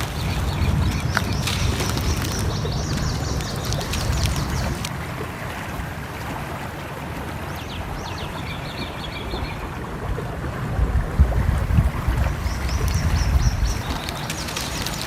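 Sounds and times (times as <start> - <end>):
birds chirping: 0.0 - 4.9, 7.4 - 9.9, 12.2 - 15.0
fireplace crackles: 0.0 - 4.9
stream flowing: 0.0 - 15.0.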